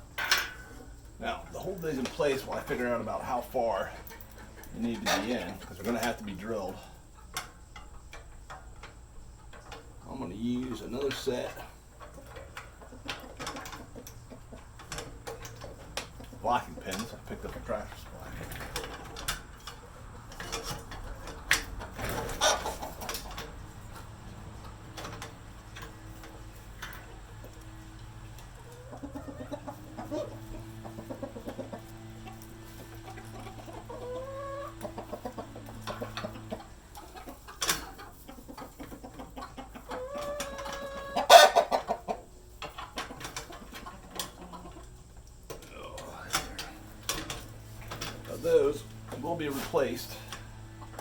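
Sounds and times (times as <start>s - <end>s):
chickens clucking: 0.0s - 51.0s
chicken squawk: 22.1s - 24.0s, 28.5s - 42.3s.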